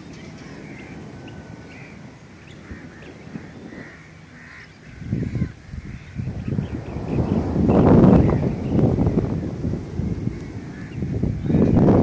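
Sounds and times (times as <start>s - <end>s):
birds calling: 0.0s - 12.0s
wind rumble on microphone: 0.0s - 12.0s.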